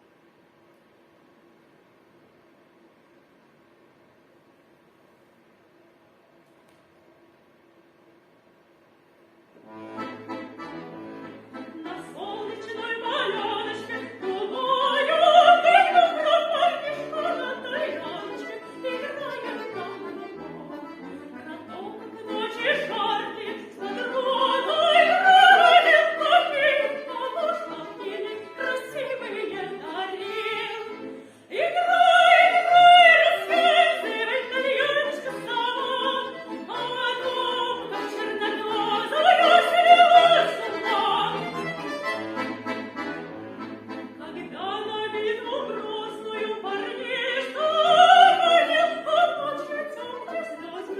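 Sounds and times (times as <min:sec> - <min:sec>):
instrumental accompaniment: 0:09.6 - 0:14.8, 0:35.0 - 0:47.3
woman singing with vibrato: 0:11.3 - 0:41.9, 0:44.1 - 0:50.9.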